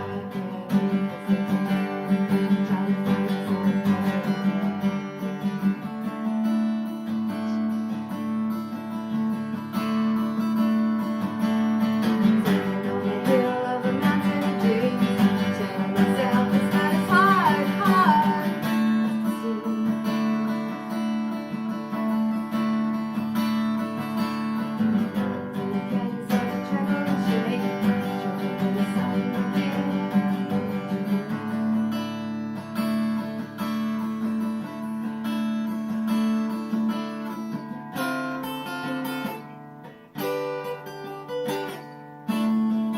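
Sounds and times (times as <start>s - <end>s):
person singing: 0.0s - 6.4s, 11.9s - 21.0s, 24.3s - 31.9s
acoustic guitar strumming: 0.0s - 42.9s.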